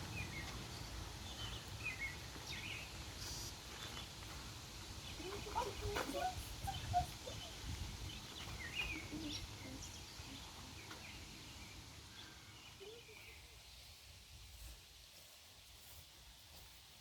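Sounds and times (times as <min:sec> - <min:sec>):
low outdoor rumble: 0:00.0 - 0:13.6
faint bird chirps: 0:05.0 - 0:14.0.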